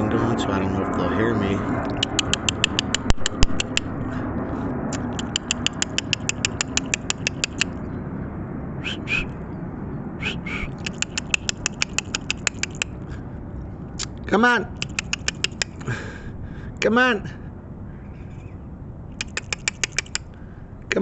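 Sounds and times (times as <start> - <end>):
rapid sharp clicks: 1.8 - 4.0, 4.9 - 7.8, 10.8 - 13.0, 14.8 - 15.9, 19.2 - 20.3
short harsh calls: 8.8 - 9.4, 10.2 - 13.0, 19.2 - 20.3.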